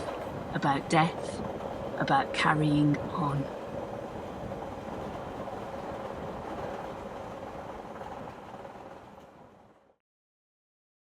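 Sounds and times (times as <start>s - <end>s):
passenger train rumbling: 0.0s - 10.0s.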